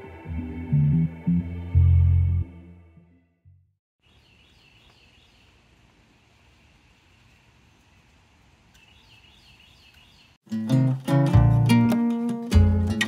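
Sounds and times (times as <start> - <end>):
bird chirping: 4.0 - 5.6, 8.7 - 10.4
faint outdoor ambience: 4.0 - 10.4.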